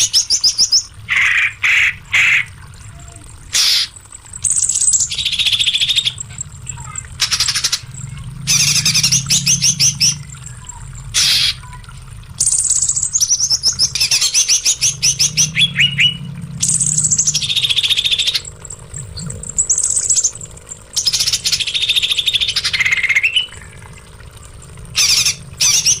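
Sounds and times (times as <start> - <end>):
songbird singing trills: 12.4 - 23.7.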